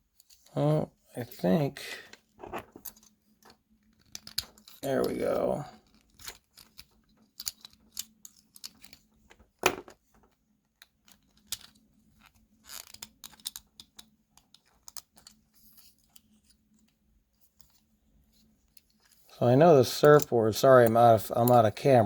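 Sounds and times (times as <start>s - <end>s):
toy car parts clicking: 2.7s - 5.2s, 5.8s - 9.1s, 10.8s - 17.0s, 19.9s - 20.3s.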